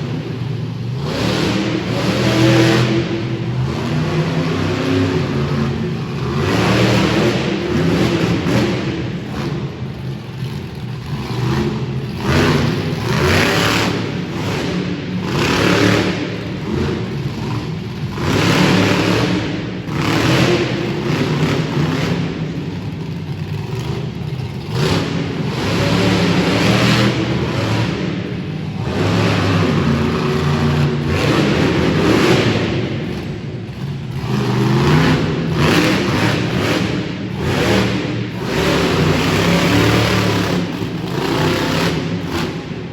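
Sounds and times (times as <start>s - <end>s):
monster truck engine revving: 0.0s - 42.9s.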